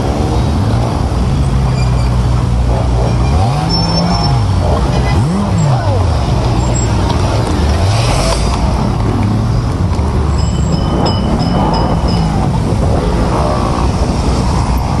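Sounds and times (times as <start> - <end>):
cars and buses passing: 0.0 - 15.0
road rumble: 0.0 - 15.0
short high beeps: 10.4 - 12.4.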